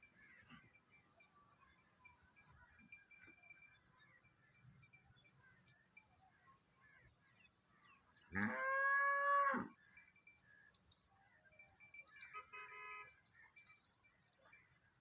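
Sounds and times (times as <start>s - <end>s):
calf mooing: 8.3s - 9.7s.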